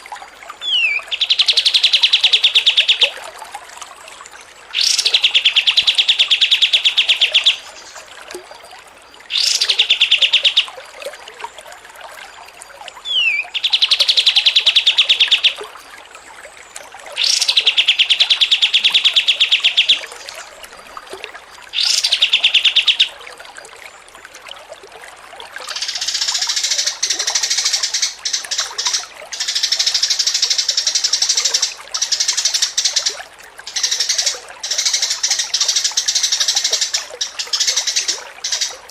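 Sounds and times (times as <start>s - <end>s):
songbird trills: 0.6s - 3.2s, 4.7s - 8.1s, 9.3s - 10.7s, 13.0s - 15.6s, 17.2s - 20.4s, 21.7s - 23.2s, 25.7s - 38.9s
dense bird chattering: 21.8s - 23.1s, 33.7s - 38.9s.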